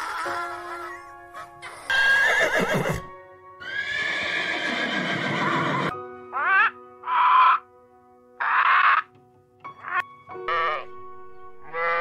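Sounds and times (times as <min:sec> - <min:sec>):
background music: 0:00.0 - 0:12.0
donkey braying: 0:01.9 - 0:07.7.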